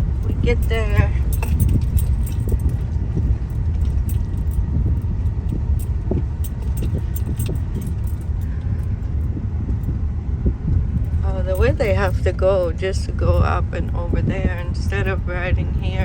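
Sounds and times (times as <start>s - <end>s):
small clicks and rattles: 0.0s - 9.9s
car road noise rumble: 0.0s - 16.0s.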